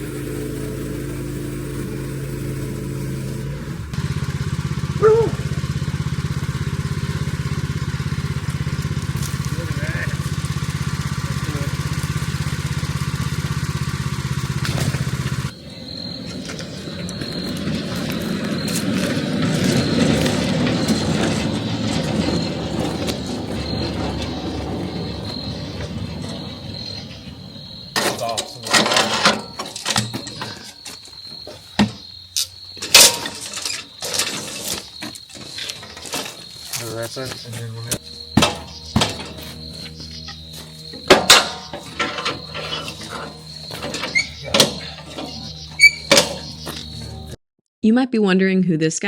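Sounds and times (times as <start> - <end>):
machine high whine: 0.0 - 28.0, 36.4 - 47.4
small gasoline engine running: 0.0 - 30.2, 32.8 - 47.4
steady high-pitched tone: 38.0 - 47.4.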